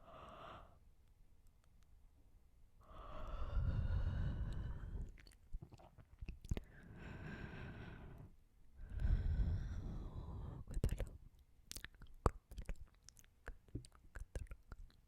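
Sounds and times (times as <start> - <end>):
mouth clicks: 3.0 - 6.7, 10.6 - 15.0.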